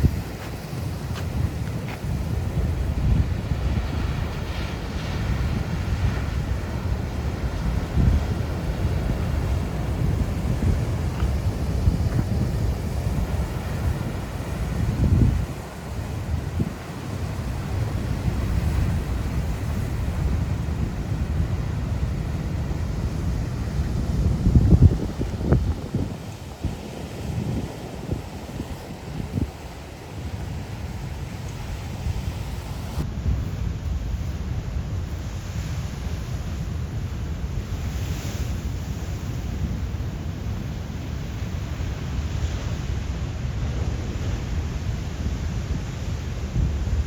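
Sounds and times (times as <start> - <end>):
ocean surf rumbling: 0.0 - 47.0
wind buffeting microphone: 0.0 - 47.0.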